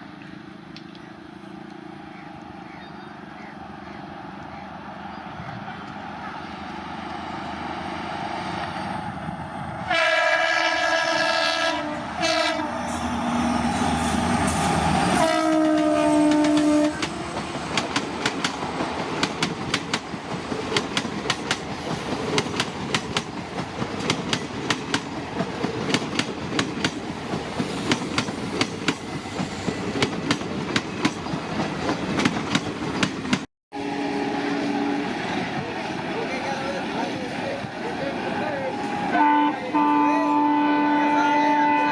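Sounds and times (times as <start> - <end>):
locomotive passing: 0.0 - 41.9
train horn blasts: 9.9 - 17.2, 33.7 - 35.2, 38.7 - 41.9
train wheels clattering on rails: 13.7 - 33.5.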